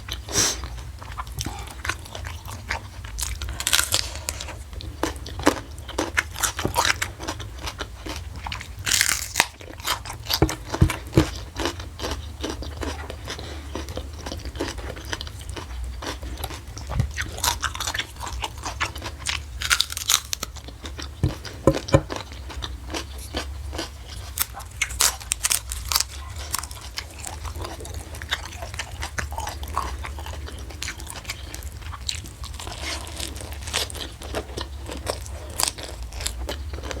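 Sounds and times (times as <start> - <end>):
chewing and crunching food: 0.0 - 37.0.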